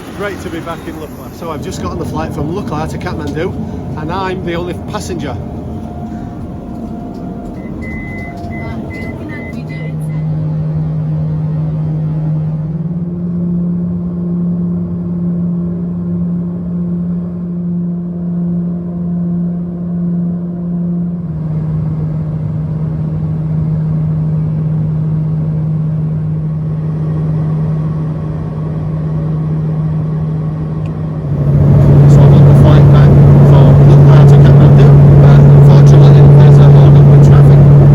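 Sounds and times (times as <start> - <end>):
rushing noise: 0.0 - 9.9, 30.6 - 37.9
airplane engines droning in cabin: 0.0 - 37.9.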